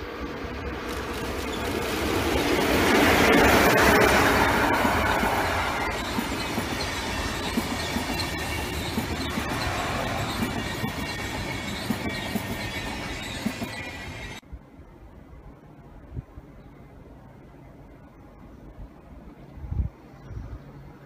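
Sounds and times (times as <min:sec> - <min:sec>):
train wheels clicking over rail joints: 0:00.7 - 0:14.4
high wheel squeal: 0:03.4 - 0:14.4.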